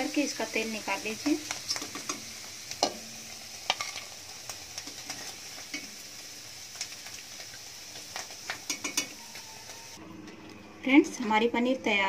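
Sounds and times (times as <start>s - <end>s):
oil sizzling: 0.0s - 10.6s
metal spoon clicks and scrapes: 8.7s - 9.1s.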